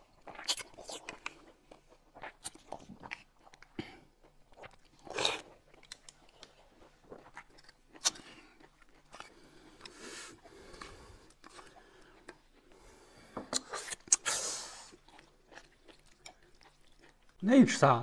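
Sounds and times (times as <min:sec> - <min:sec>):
people biting and chewing food: 0:00.0 - 0:17.4
mouth smacks and clicks: 0:13.5 - 0:17.3.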